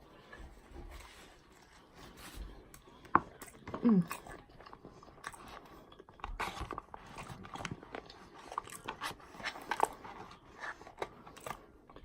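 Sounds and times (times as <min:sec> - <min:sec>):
chewing and biting food: 0:02.7 - 0:12.0.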